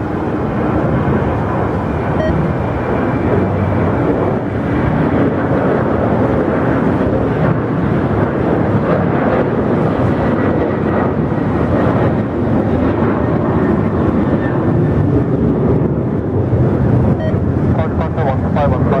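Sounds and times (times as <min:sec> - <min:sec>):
faint high whine: 0:00.0 - 0:04.2
jet engines running: 0:00.0 - 0:19.0.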